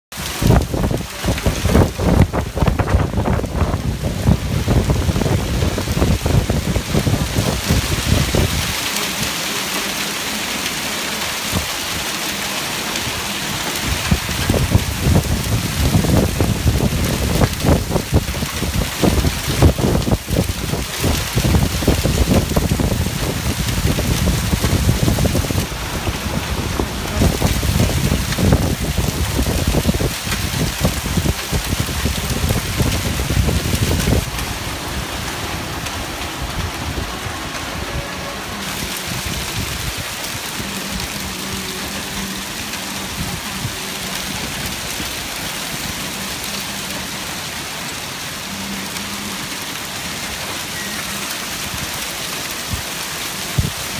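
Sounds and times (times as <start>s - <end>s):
heavy rain pouring: 0.0s - 53.9s
low rumbling: 13.0s - 47.2s.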